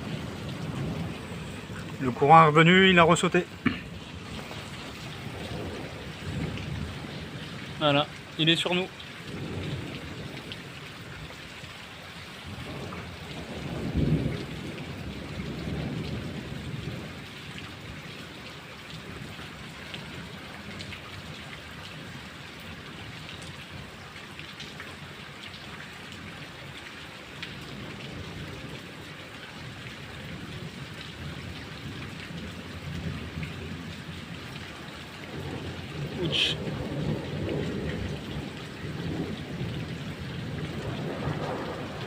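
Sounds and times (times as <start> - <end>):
close thunderclap rumbling: 0.0 - 8.0, 9.2 - 10.6, 12.5 - 17.2, 35.2 - 42.0
faint rumble of thunder: 0.0 - 42.0
steady rain falling: 0.0 - 42.0.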